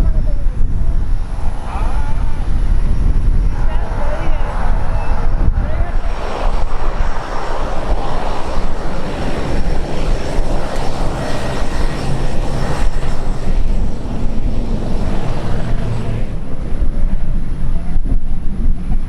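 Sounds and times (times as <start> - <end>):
airplane engines rumbling: 0.0 - 19.0.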